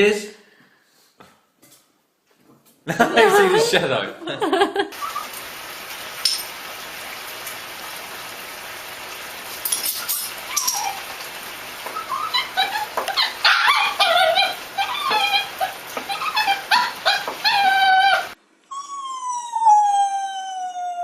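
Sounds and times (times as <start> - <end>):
dog whining and yipping: 5.0 - 5.4, 9.9 - 21.0.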